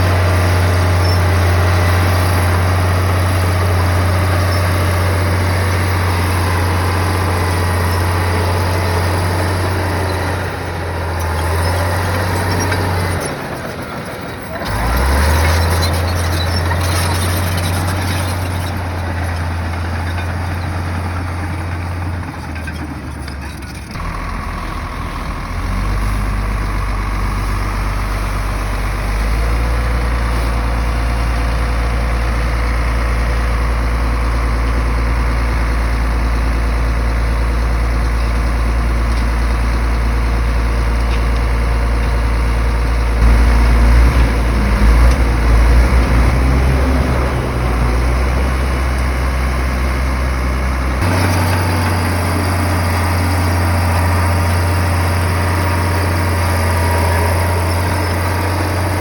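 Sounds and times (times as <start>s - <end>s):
bulldozer diesel engine: 0.0s - 59.0s.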